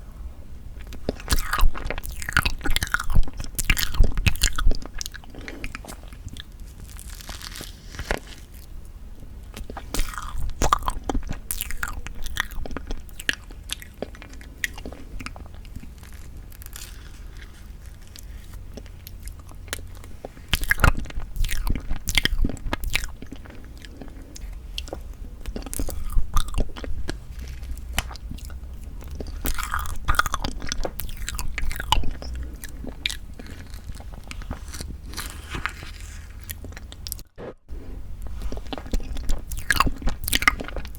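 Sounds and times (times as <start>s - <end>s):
wet chewing and mouth smacks: 9.5s - 35.6s, 38.2s - 40.9s.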